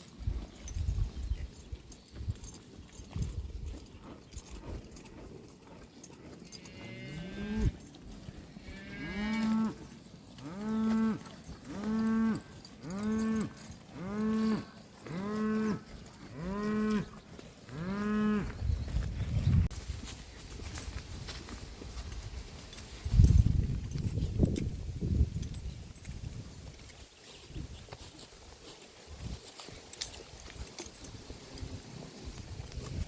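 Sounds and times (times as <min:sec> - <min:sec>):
cattle mooing: 0:08.6 - 0:09.8, 0:10.4 - 0:18.6.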